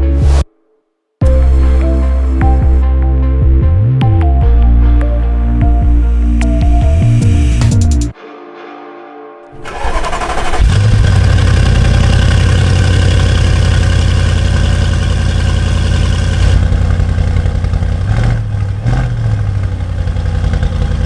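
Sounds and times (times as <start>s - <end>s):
car engine starting and idling: 9.5s - 21.0s.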